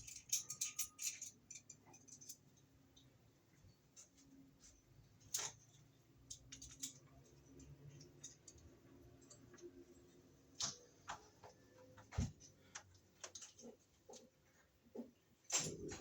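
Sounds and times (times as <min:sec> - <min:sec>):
small metal clicks and taps: 0:00.0 - 0:03.2, 0:05.3 - 0:09.8.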